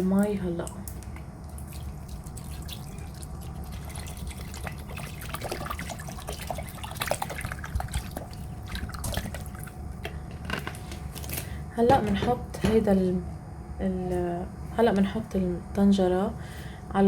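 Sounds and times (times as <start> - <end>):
water splashes and drips: 1.4 - 9.7
water pouring into a pot: 1.7 - 9.8.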